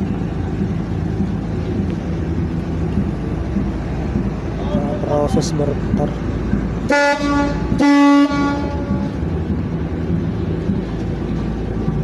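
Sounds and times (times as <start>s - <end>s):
low rumble of engines: 0.0s - 12.0s
ship's horn blasts: 4.5s - 10.6s.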